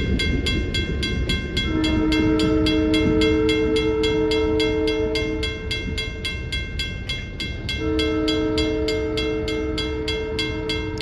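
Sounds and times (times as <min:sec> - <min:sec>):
crossing bell ringing: 0:00.0 - 0:11.0
passing train rumble: 0:00.0 - 0:11.0
train air horn: 0:01.6 - 0:06.0, 0:07.7 - 0:11.0.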